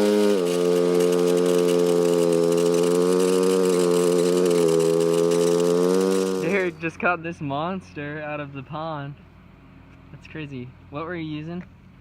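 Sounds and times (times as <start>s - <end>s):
utility vehicle engine running: 0.0s - 8.6s.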